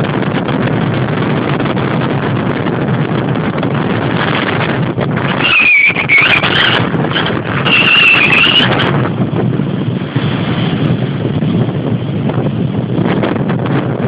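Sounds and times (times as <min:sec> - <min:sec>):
wind buffeting microphone: 0:00.0 - 0:14.0
high whistling tone: 0:05.3 - 0:06.9, 0:07.5 - 0:08.9.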